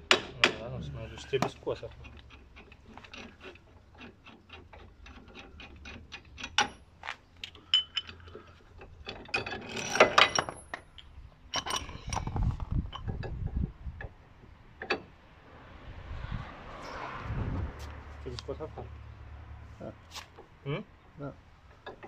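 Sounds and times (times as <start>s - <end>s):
metal tools clanking: 0.1s - 13.4s.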